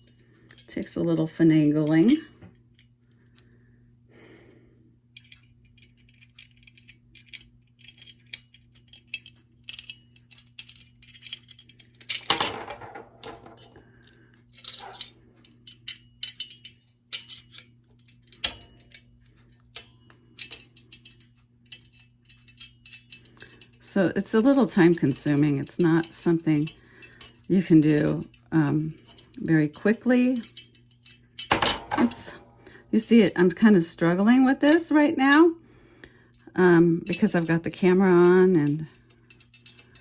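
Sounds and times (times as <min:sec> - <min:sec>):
small metal parts clinking: 0:00.0 - 0:00.8, 0:05.1 - 0:23.8, 0:25.0 - 0:32.8, 0:38.3 - 0:40.0.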